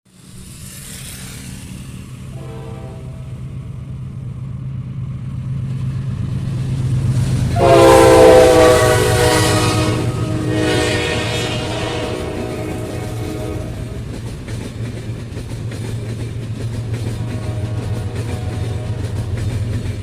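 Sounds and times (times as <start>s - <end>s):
diesel locomotive engine hum: 0.1s - 20.0s
train horn blast: 2.3s - 3.5s, 7.5s - 14.1s, 16.8s - 19.5s.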